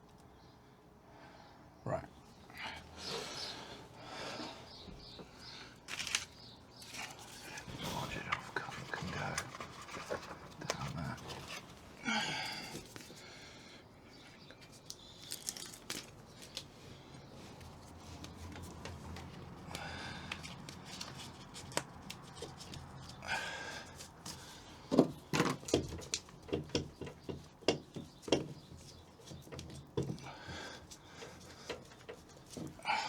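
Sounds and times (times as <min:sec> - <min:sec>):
sheets rustling: 0:05.9 - 0:12.1
knocks and taps on car body: 0:24.9 - 0:28.8.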